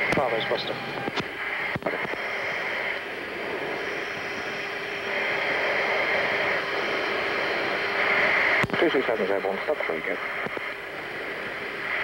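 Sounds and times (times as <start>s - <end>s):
aircraft cabin engine and airflow noise: 0.0s - 12.0s
faint steady hum: 0.0s - 12.0s.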